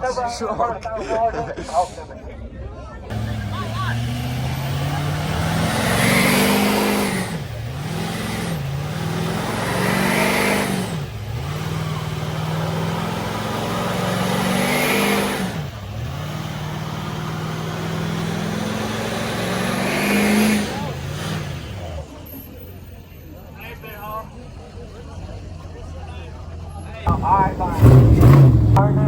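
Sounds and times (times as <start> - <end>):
truck engine revving hard: 3.1 - 22.6, 27.0 - 29.0.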